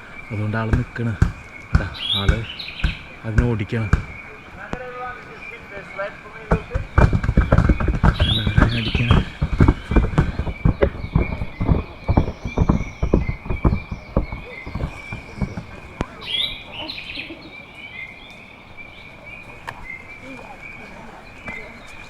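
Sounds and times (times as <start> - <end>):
irregular thuds and knocks: 0.0 - 16.9
insect drone: 0.0 - 21.8
bird chirping: 0.0 - 22.0.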